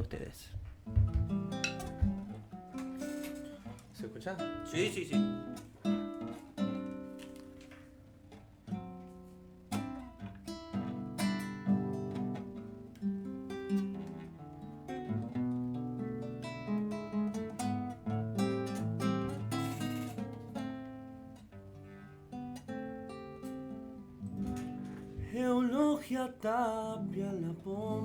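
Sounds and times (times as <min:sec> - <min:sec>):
acoustic guitar playing: 0:00.0 - 0:28.0.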